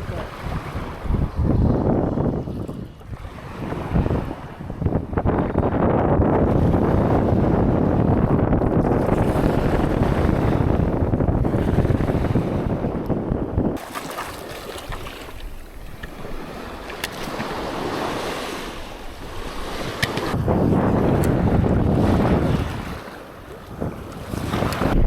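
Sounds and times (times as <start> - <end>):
waves washing on beach: 0.0 - 1.8, 13.8 - 25.0
wind buffeting microphone: 0.0 - 25.0.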